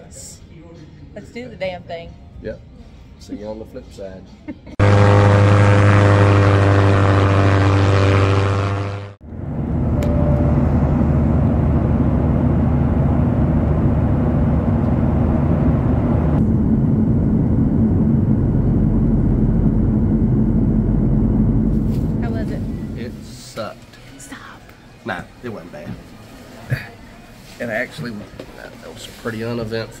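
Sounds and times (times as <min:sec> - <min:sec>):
airliner engine drone: 0:04.8 - 0:23.9
rough low engine rumble: 0:04.8 - 0:28.9.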